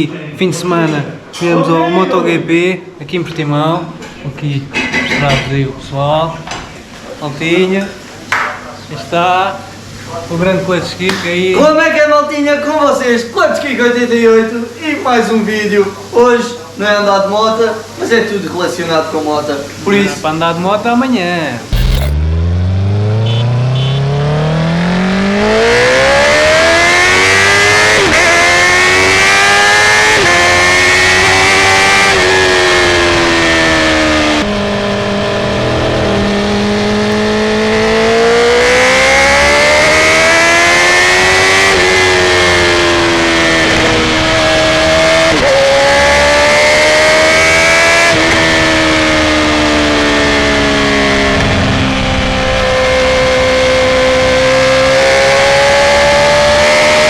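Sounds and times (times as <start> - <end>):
motorcycle engine revving: 21.7 - 57.0.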